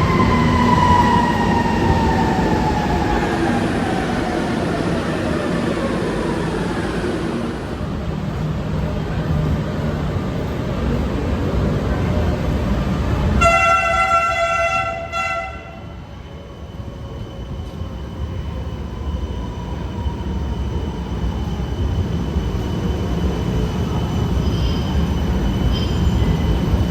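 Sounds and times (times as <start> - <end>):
light rail train rumbling: 0.0 - 26.9
train horn blast: 13.4 - 15.9.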